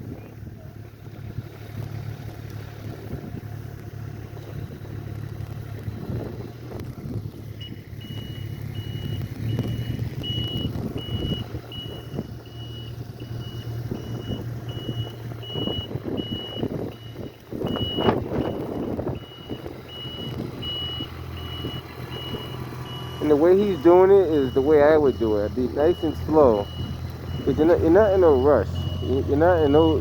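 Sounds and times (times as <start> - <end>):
truck engine running: 0.0 - 30.0
truck backup alarm beeping: 5.7 - 30.0.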